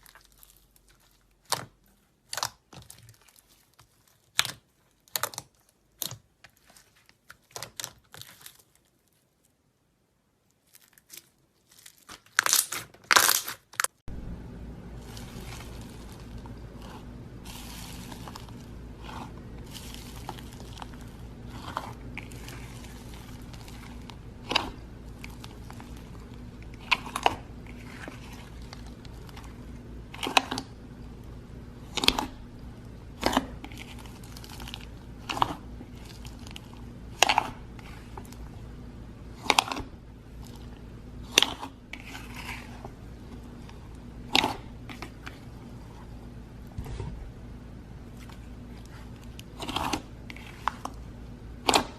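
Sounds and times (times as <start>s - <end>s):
soft crinkly crackling: 0.0s - 9.6s, 10.4s - 12.7s, 14.9s - 31.4s, 32.0s - 38.6s.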